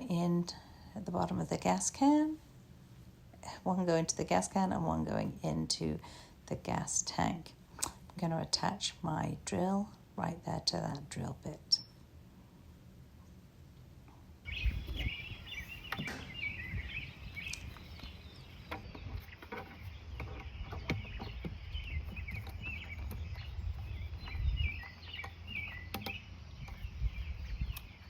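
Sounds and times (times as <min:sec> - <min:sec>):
low wind rumble: 0:00.0 - 0:28.0
small birds chirping: 0:10.8 - 0:12.0, 0:14.4 - 0:28.0
light knocks and clicks: 0:15.8 - 0:16.5, 0:17.4 - 0:26.8.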